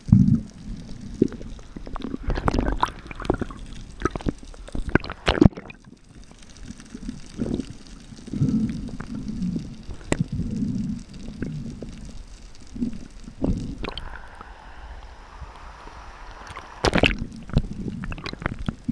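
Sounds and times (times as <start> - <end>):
low underwater rumbles: 0.0 - 18.9
steady underwater hiss: 0.0 - 18.9
water splashing: 13.4 - 18.9.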